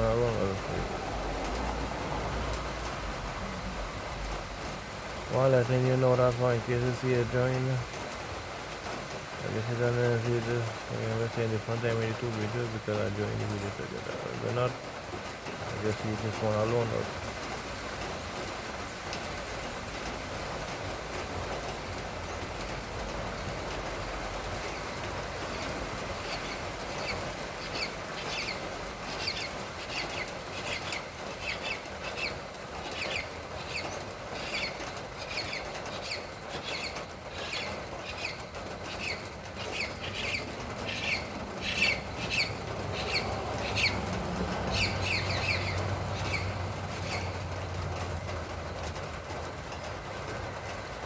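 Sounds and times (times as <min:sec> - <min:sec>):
light rain hissing: 0:00.0 - 0:51.0
bird chirping: 0:23.9 - 0:47.5.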